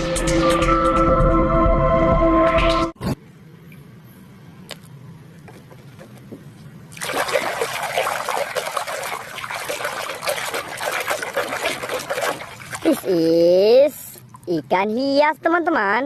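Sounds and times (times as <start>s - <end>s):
running water splashing: 6.9s - 14.6s.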